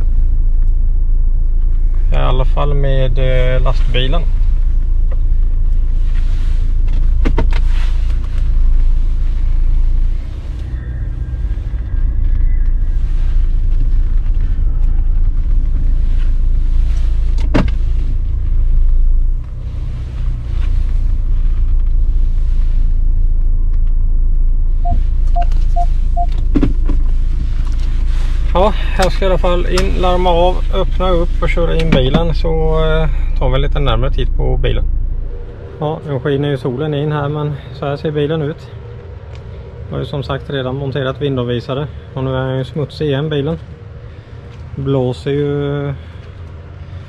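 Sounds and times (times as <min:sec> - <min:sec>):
diesel car rumble from inside: 0:00.0 - 0:47.0
short beeps: 0:24.8 - 0:26.3.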